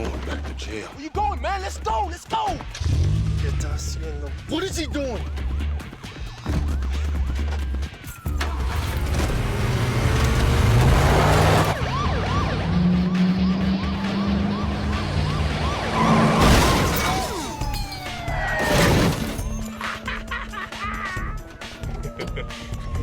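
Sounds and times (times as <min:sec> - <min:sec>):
action movie music: 0:00.0 - 0:23.0
police siren yelping: 0:08.1 - 0:19.8, 0:21.2 - 0:23.0
car crashing: 0:08.3 - 0:11.8, 0:15.5 - 0:19.8.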